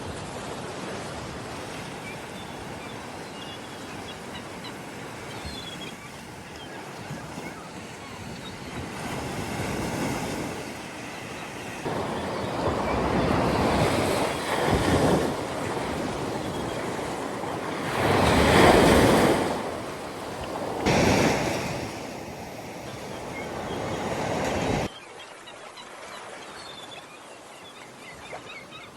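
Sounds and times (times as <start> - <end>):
sea waves breaking on shore: 0.0 - 28.9
wind buffeting microphone: 6.1 - 24.9.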